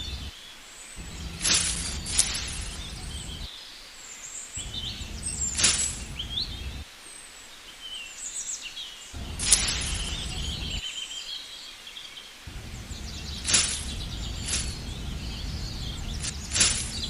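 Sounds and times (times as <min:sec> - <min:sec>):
low rumble: 0:00.0 - 0:00.3, 0:01.0 - 0:03.5, 0:04.6 - 0:06.8, 0:09.2 - 0:10.8, 0:12.5 - 0:17.0
small birds chirping: 0:00.0 - 0:17.0.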